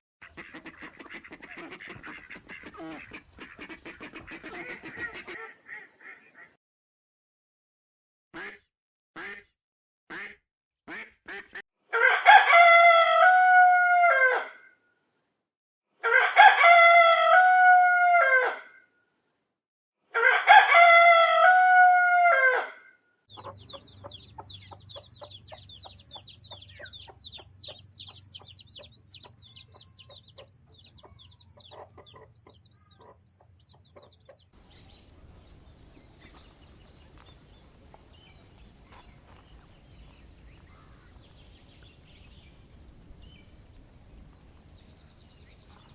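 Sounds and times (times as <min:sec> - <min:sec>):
rooster crowing: 0:11.9 - 0:14.6, 0:16.0 - 0:18.8, 0:20.2 - 0:22.9.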